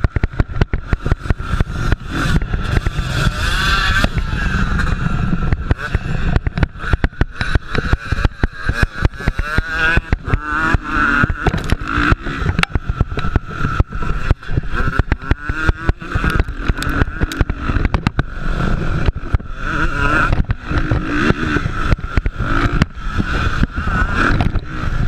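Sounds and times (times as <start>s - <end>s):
engine crackles and thumps: 0.0s - 25.0s
motocross bike engines revving: 0.0s - 25.0s.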